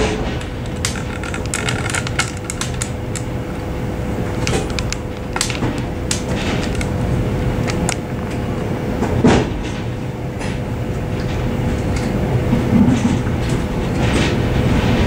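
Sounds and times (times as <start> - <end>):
clicks and knocks: 0.0 - 10.6
steady mechanical hum: 0.0 - 15.0.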